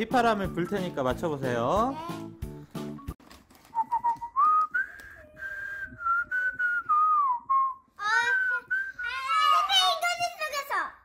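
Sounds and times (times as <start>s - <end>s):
man whistling a tune: 3.7s - 9.2s.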